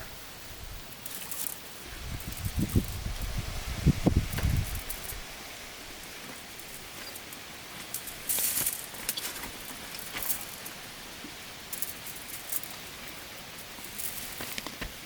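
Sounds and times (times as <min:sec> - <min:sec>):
steady outdoor hiss: 0:00.0 - 0:15.0
rustling and light crackling: 0:00.6 - 0:15.0.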